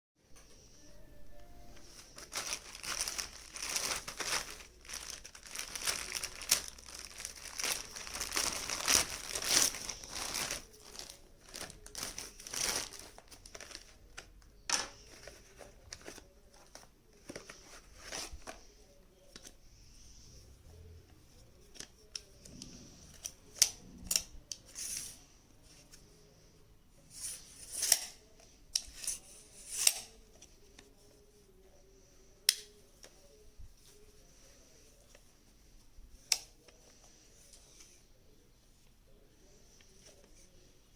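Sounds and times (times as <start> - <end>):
packaging crinkling and tearing: 2.0 - 14.3.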